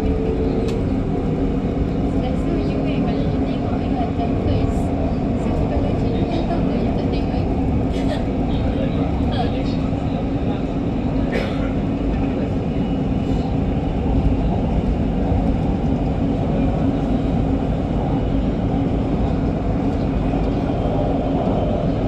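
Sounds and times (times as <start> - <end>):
constant hum: 0.0 - 22.0
train wheels rumbling on rails: 0.0 - 22.0.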